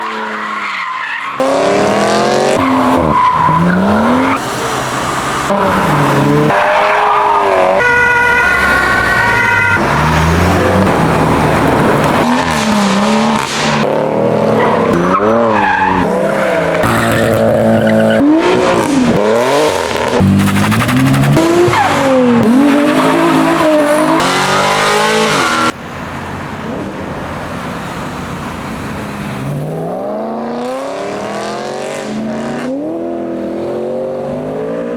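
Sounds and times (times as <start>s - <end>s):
tire squeal: 0.0s - 13.8s, 14.6s - 19.2s, 19.8s - 25.7s
car engines revving and accelerating: 0.0s - 34.9s.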